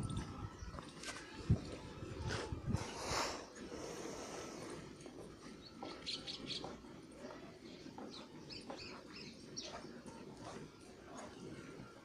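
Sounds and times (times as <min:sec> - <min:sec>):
faint outdoor background: 0:00.0 - 0:12.0
small birds chirping: 0:05.4 - 0:10.6.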